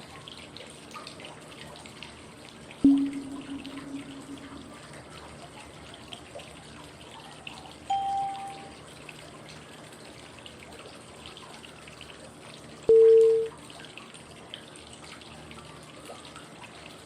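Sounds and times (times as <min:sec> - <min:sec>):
flowing water with drips: 0:00.0 - 0:17.0
short cue tone: 0:02.8 - 0:04.8, 0:07.9 - 0:08.8, 0:12.9 - 0:13.6.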